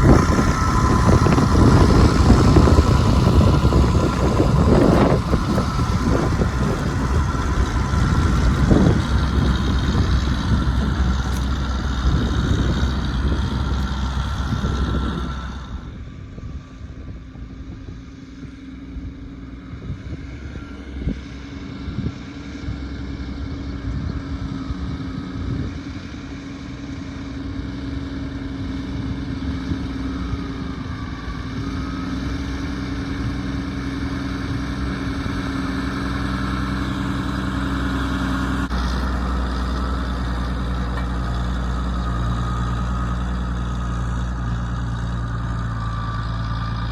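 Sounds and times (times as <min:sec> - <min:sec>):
loud rushing noise: 0:00.0 - 0:15.8
tractor diesel engine running: 0:00.0 - 0:46.9.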